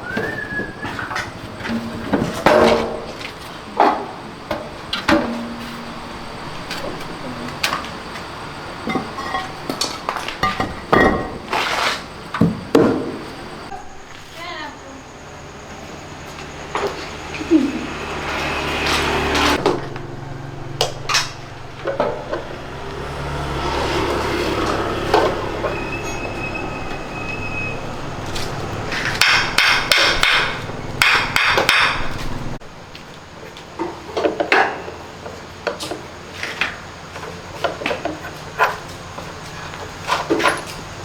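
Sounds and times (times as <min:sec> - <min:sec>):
hand tools knocking and tapping: 0:28.8 - 0:32.3.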